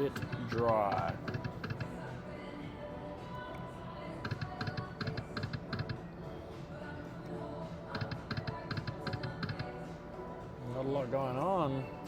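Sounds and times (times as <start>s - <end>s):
poker machine clicking ticks: 0.1s - 1.9s, 4.2s - 6.0s, 7.9s - 9.7s.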